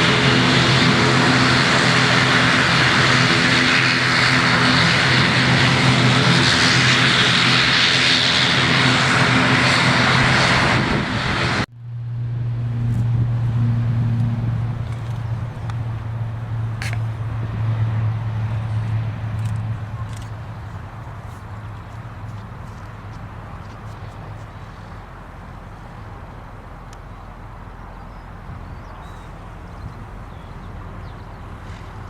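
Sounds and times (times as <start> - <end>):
turboprop engines at high power: 0.0 - 32.0
steady low hum: 11.1 - 32.0.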